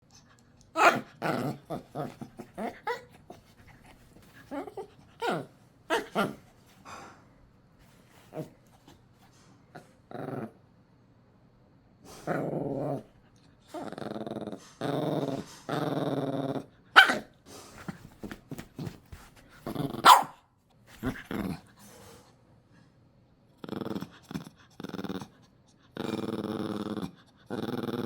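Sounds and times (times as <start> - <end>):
dog barking: 0.8 - 1.1, 17.0 - 17.3, 20.0 - 20.4
dog snarling: 0.8 - 6.4, 23.6 - 28.0
dog growling: 0.8 - 7.1, 8.2 - 8.6, 9.7 - 10.6, 12.1 - 17.2, 19.6 - 20.2, 21.0 - 21.8, 23.6 - 28.0.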